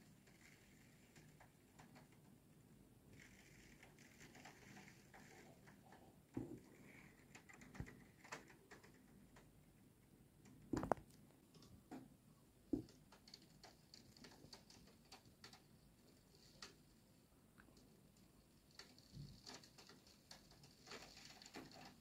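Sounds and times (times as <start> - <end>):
raindrops tapping on a window: 0.0 - 2.4, 3.1 - 9.6, 12.7 - 17.0, 17.8 - 22.0.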